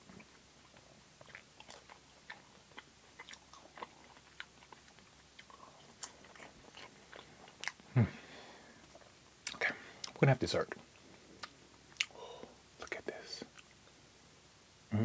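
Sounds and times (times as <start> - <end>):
person chewing fries: 0.0 - 7.9, 10.9 - 13.8.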